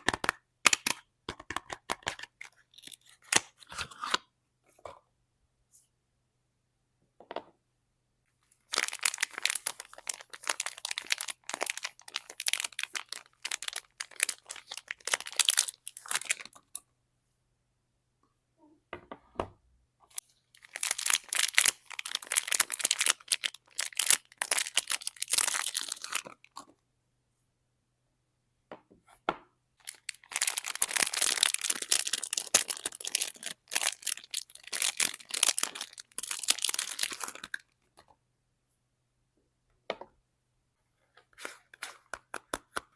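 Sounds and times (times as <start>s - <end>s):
soap wrapping tearing and crinkling: 1.6s - 4.2s, 8.6s - 16.8s, 20.1s - 26.6s, 29.8s - 37.8s.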